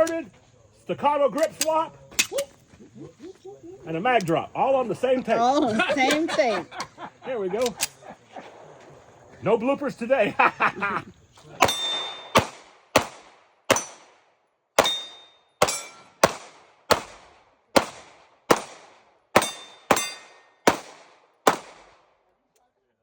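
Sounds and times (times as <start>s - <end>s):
pistol shots: 11.6s - 22.1s
thin metallic ring: 14.9s - 16.1s.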